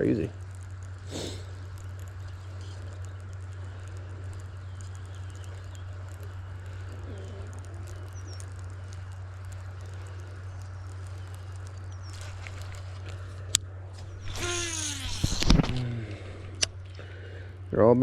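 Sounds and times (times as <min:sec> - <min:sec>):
steady low hum: 0:00.0 - 0:18.0
faint bird chirps: 0:01.4 - 0:13.4.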